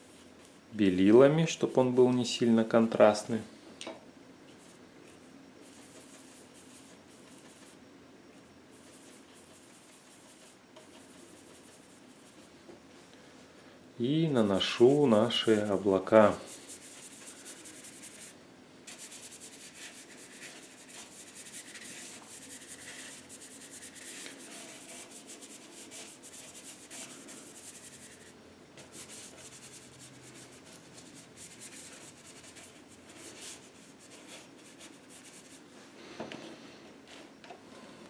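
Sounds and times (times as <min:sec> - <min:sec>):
paintbrush scrubbing on canvas: 0:08.8 - 0:12.5, 0:14.6 - 0:35.7.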